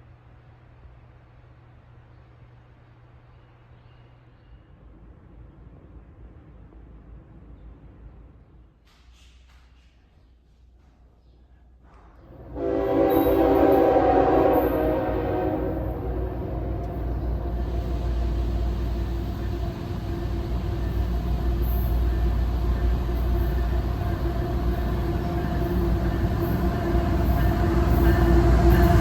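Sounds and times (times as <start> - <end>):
train rumbling by: 11.6 - 29.0
wheels squealing on rails: 12.3 - 29.0.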